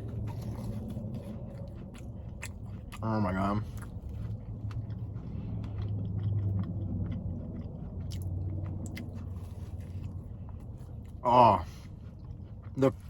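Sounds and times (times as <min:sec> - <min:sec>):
low steady hum: 0:00.0 - 0:13.0
person chewing: 0:00.0 - 0:13.0.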